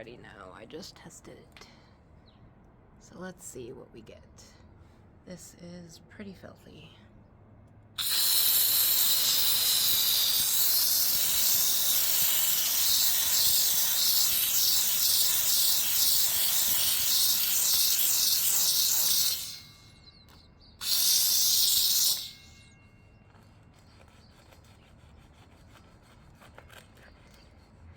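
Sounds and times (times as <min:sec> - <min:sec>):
steam cleaner hissing: 0:08.0 - 0:19.7, 0:20.8 - 0:22.4.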